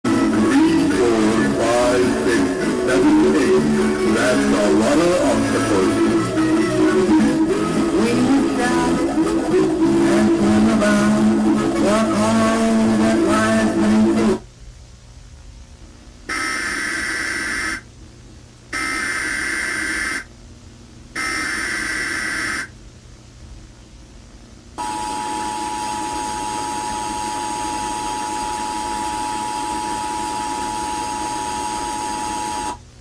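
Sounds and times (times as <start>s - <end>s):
screeching data bursts: 0.1s - 14.4s, 16.3s - 17.8s, 18.8s - 20.3s, 21.2s - 22.7s.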